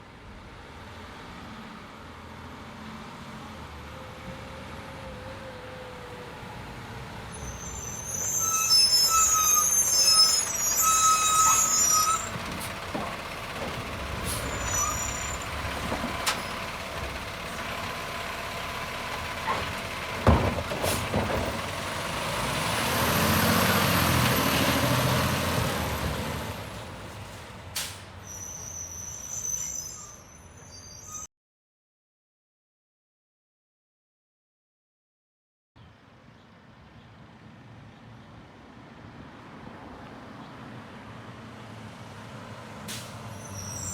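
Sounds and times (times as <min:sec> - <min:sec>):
high brake squeal: 0:07.3 - 0:17.8, 0:27.8 - 0:31.3, 0:42.9 - 0:43.9
hydraulic lift noise: 0:08.9 - 0:21.8
diesel engine running: 0:08.9 - 0:28.0.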